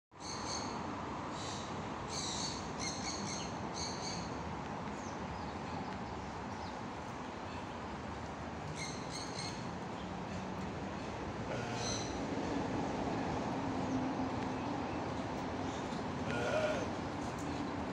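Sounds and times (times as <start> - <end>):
birds chirping: 2.2 - 12.2, 13.9 - 17.9.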